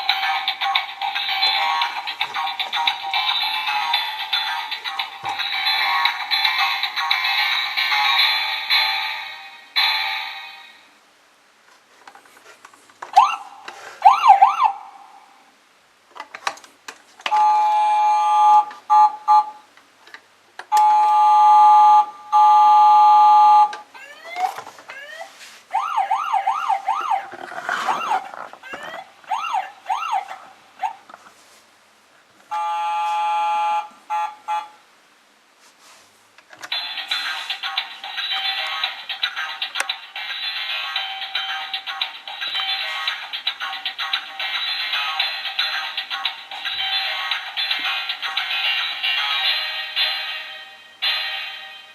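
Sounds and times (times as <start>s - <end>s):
toy electronic siren: 17.3s - 19.6s, 20.8s - 30.3s, 32.5s - 34.8s.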